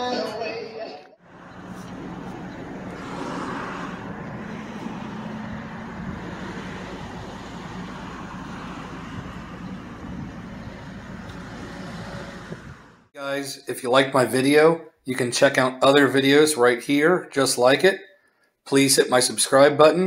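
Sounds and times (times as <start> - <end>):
car engine idling: 1.2 - 13.1
light traffic: 1.2 - 13.1.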